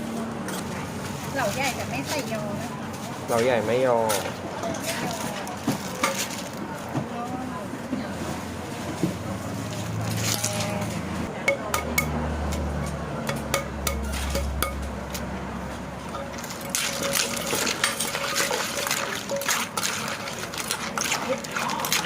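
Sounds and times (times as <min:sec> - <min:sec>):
utensils and dishes clinking: 0:03.3 - 0:06.9, 0:10.0 - 0:15.2, 0:16.0 - 0:22.0.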